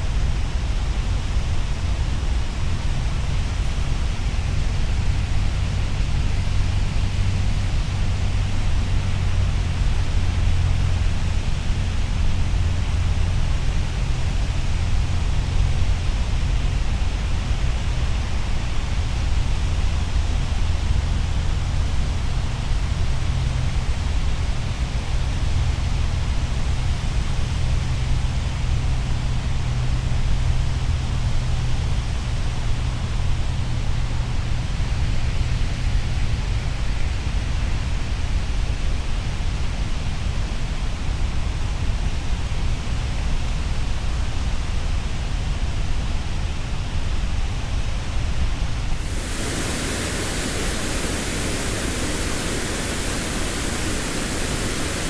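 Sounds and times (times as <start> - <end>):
falling water rushing: 48.9 - 55.0.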